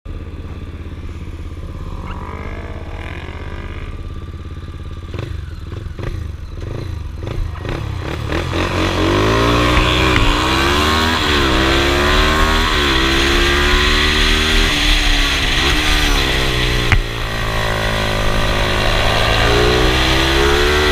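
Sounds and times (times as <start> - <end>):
motorcycle engine: 0.1 - 20.9
rushing wind noise: 9.5 - 20.9.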